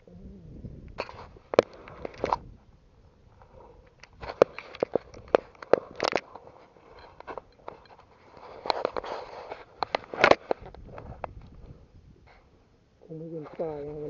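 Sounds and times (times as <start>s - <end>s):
rustling: 0.9s - 14.0s
sharp clicks and knocks: 3.9s - 9.0s.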